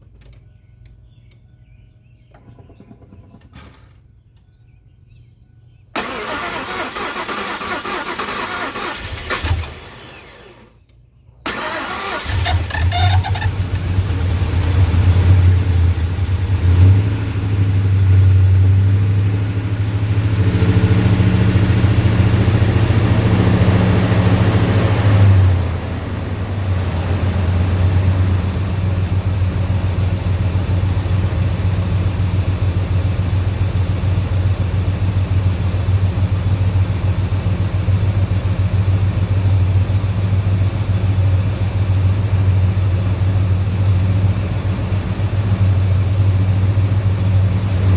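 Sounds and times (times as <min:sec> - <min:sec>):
truck engine idling: 0:11.5 - 0:47.9.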